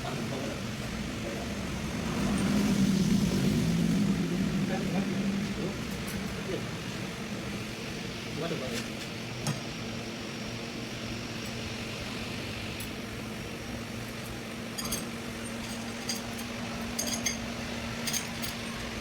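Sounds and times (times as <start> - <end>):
steady low hum: 0.0 - 19.0
metallic clinks of tools: 14.8 - 18.8.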